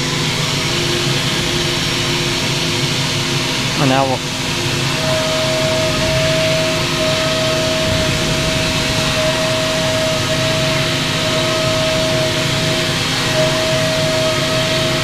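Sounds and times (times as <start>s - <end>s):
coolant and air hiss: 0.0s - 15.0s
milling machine high tone: 0.0s - 15.0s.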